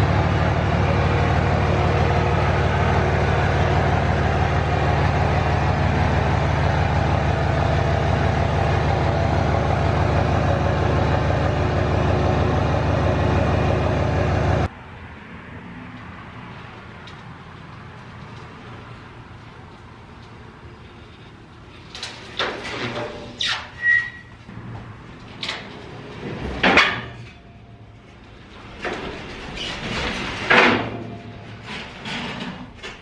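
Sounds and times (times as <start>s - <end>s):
car engine running: 0.0s - 14.7s.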